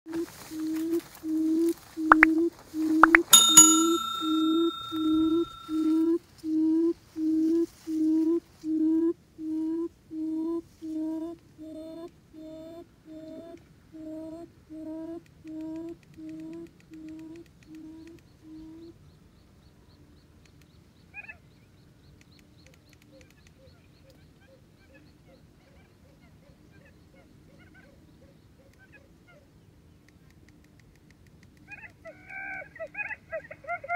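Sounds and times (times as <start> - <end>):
brief high chirp: 3.0 - 6.0.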